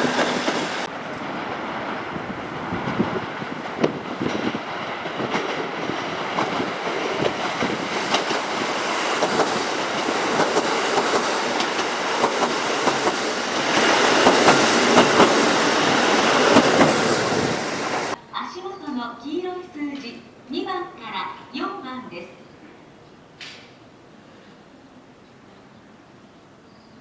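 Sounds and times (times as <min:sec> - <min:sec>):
wheels clicking over rail joints: 0:00.0 - 0:18.2
train running on rails: 0:00.0 - 0:21.9.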